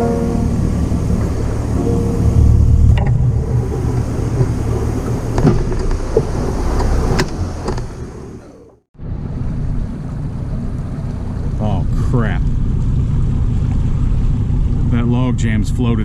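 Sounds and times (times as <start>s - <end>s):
wind noise: 0.0s - 8.4s
outboard motor rumbling: 0.0s - 16.0s.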